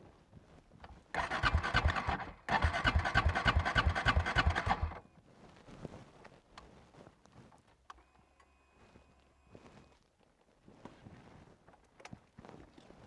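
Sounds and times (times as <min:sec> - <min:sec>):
motorcycle starter cranking engine: 0:01.1 - 0:05.0.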